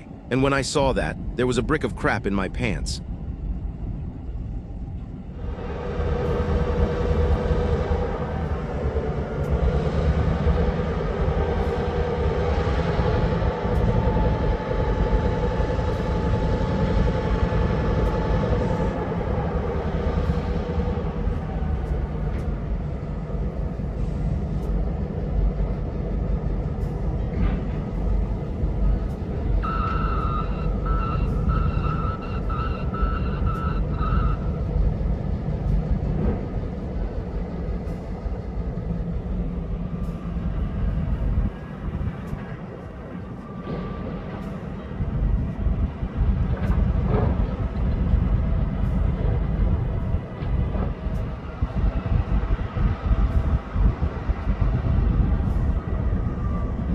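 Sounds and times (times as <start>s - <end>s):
diesel locomotive rumbling: 0.0s - 56.9s
rapidly pulsing ringing tone: 28.0s - 35.0s.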